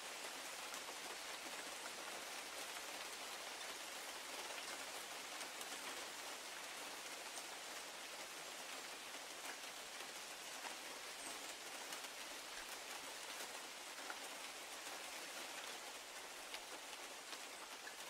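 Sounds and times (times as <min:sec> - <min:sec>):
steady rain hiss: 0:00.0 - 0:18.0.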